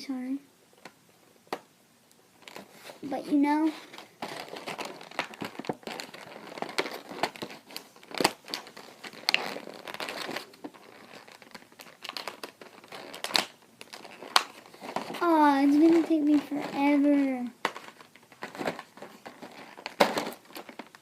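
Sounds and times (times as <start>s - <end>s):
plastic packaging crinkling: 2.4s - 21.0s
plastic snapping: 4.0s - 15.2s, 17.6s - 21.0s.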